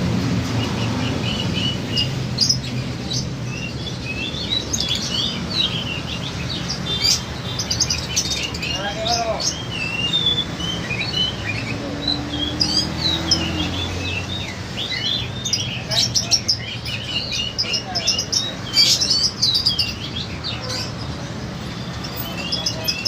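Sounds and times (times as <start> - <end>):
lovebirds chirping: 0.0 - 23.0.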